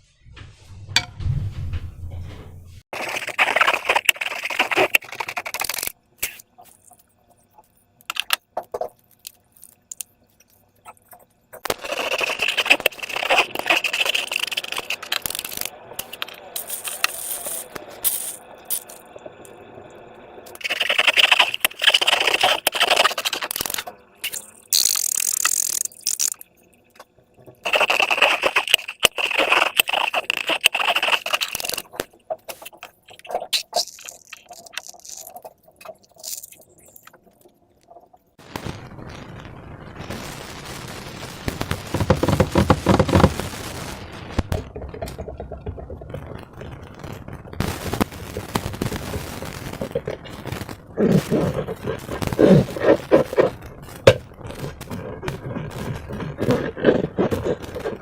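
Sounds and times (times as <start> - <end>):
slime squelching by hand: 11.8 - 19.0, 20.6 - 26.5, 27.6 - 38.0.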